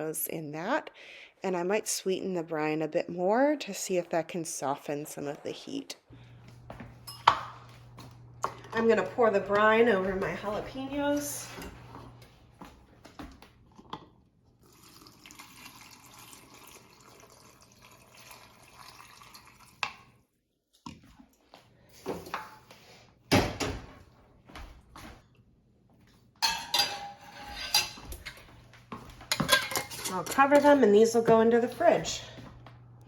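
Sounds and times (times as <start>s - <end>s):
liquid pouring: 14.6s - 20.1s
kitchen containers knocking: 29.3s - 31.5s.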